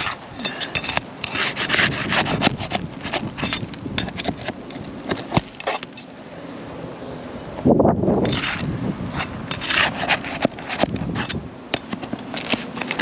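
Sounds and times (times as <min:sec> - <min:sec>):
prying under roof shingles: 0:00.0 - 0:06.1, 0:09.3 - 0:13.0.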